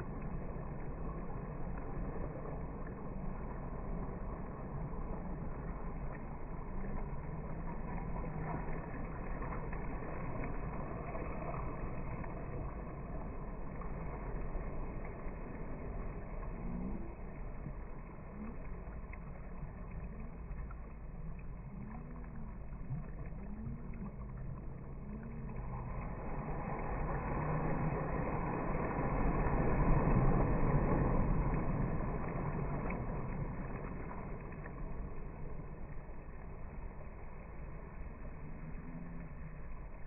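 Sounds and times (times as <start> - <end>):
motor passing by: 0.0 - 39.8.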